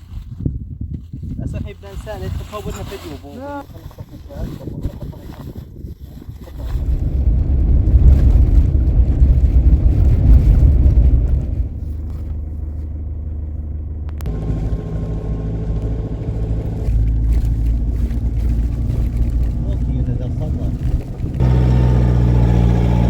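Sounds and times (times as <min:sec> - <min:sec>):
car engine and road rumble: 0:06.5 - 0:23.0.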